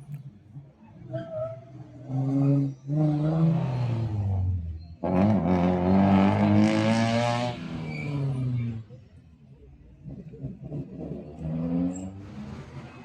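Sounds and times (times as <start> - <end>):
car accelerating hard: 1.9 - 9.0, 10.0 - 13.0.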